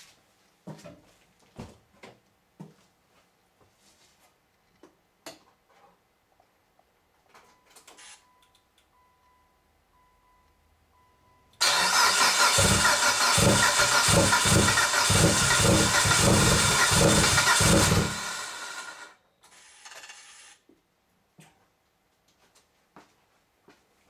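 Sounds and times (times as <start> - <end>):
car engine cranking: 11.6 - 19.1.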